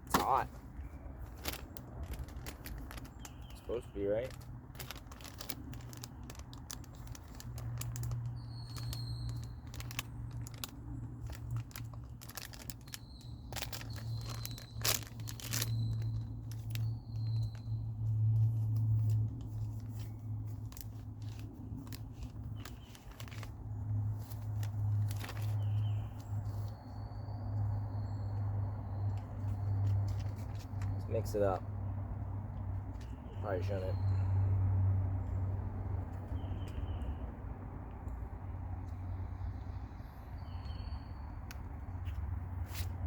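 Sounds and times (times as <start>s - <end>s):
packaging crinkling and tearing: 1.2s - 26.7s, 29.4s - 31.0s.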